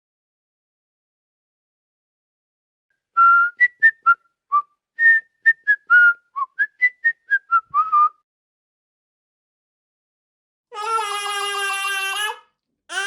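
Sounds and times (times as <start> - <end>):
whistling a quick tune: 3.2 - 8.2.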